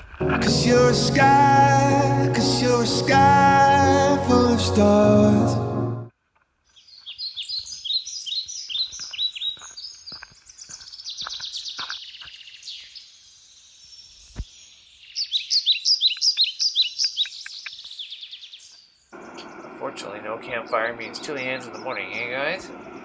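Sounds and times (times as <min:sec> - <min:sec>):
songbirds chirping: 0:06.6 - 0:23.0.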